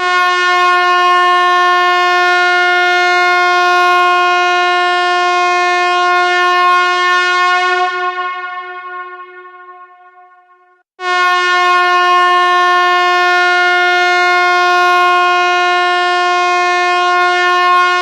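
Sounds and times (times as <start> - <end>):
steady test tone: 7.7 - 10.8.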